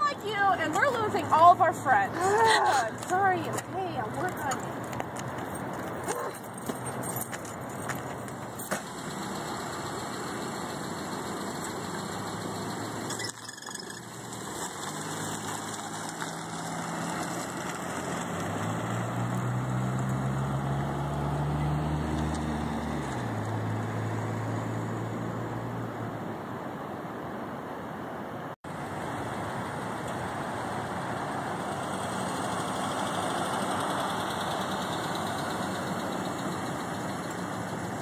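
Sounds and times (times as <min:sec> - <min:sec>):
car engine running: 0:03.1 - 0:13.1.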